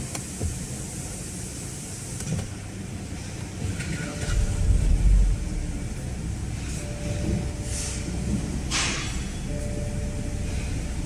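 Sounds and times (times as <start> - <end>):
car engine starting and idling: 2.4 - 11.0.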